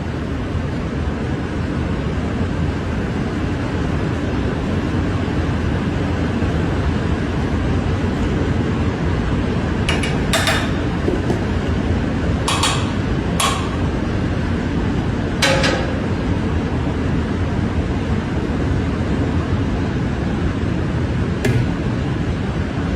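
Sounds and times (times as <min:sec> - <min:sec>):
hammer striking metal: 0:09.9 - 0:11.6, 0:12.5 - 0:14.0, 0:15.4 - 0:16.4, 0:21.4 - 0:21.8.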